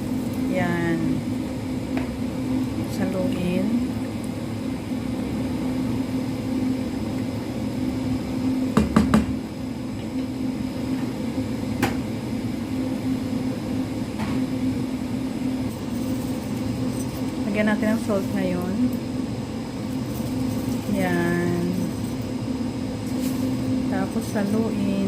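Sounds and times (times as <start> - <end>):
kitchen appliance electric hum: 0.0 - 25.0
utensil knocking on pot: 8.8 - 9.4.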